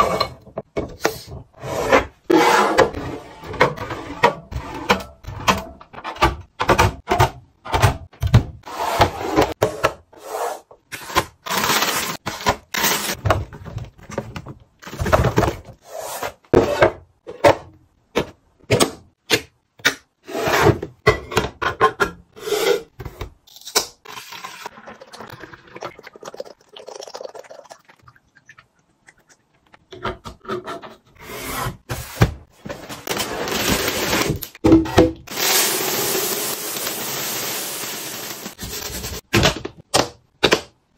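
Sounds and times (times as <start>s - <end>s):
items knocking and clinking in fridge: 2.7s - 8.6s, 11.0s - 15.8s, 32.0s - 35.4s, 38.6s - 40.9s.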